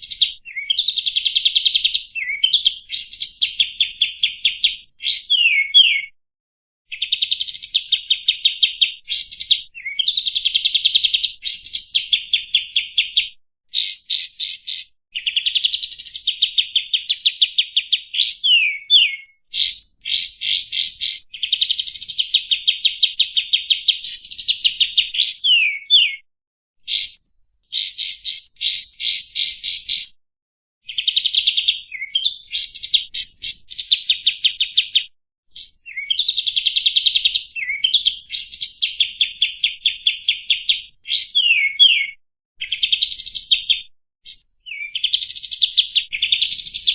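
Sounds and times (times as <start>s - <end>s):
bird singing trilled phrases: 0.0s - 6.2s, 6.9s - 30.2s, 30.8s - 46.9s
bird upward-sweeping whistles: 2.1s - 6.1s, 9.1s - 10.3s, 13.8s - 16.4s, 17.6s - 21.7s, 23.6s - 26.2s, 26.9s - 30.1s, 35.6s - 36.4s, 37.6s - 38.8s, 39.6s - 43.6s, 44.3s - 46.9s.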